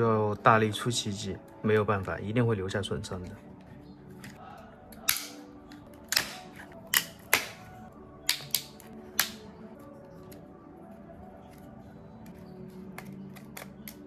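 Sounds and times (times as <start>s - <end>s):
faint background music: 0.0s - 14.0s
plastic clips snapping: 4.2s - 9.6s, 12.2s - 14.0s.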